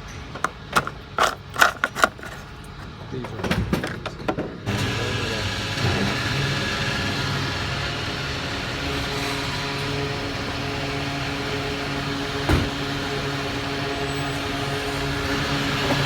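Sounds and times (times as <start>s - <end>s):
machine humming: 4.7s - 16.0s.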